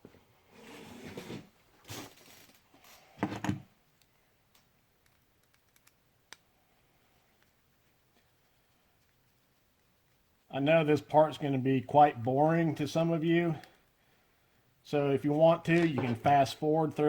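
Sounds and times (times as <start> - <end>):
parts rustling and scraping: 0.0 - 3.7, 15.7 - 16.4.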